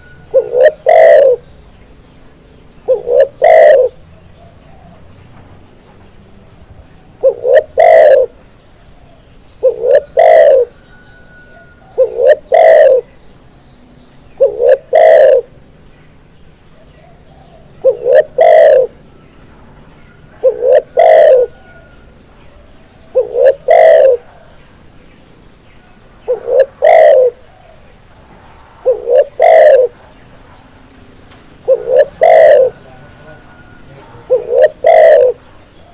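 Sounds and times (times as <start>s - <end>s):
dove cooing: 0.0s - 1.4s, 2.8s - 5.1s, 7.2s - 8.4s, 9.0s - 13.1s, 14.4s - 15.6s, 16.8s - 19.0s, 20.1s - 24.6s, 26.2s - 27.9s, 28.8s - 30.2s, 31.6s - 35.9s.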